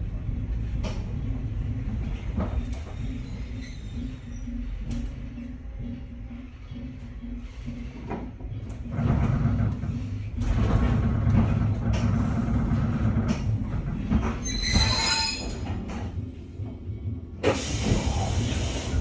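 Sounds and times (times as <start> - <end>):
train running rumble: 0.0 - 19.0
high-pitched wheel squeal: 14.4 - 15.7.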